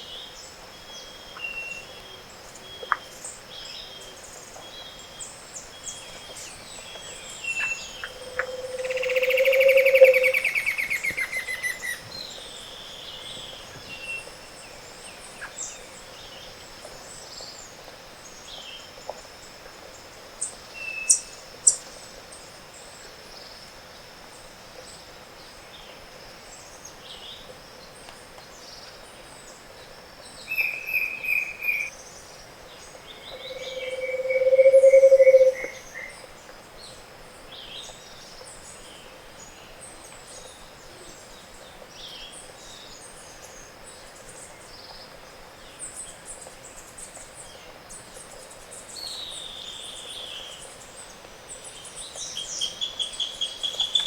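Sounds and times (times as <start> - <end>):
low hooting bird song: 0.0 - 17.5, 30.3 - 36.3
high insect tone: 0.1 - 36.5, 47.9 - 54.0
bird calls and trills: 4.0 - 17.6, 30.5 - 36.3.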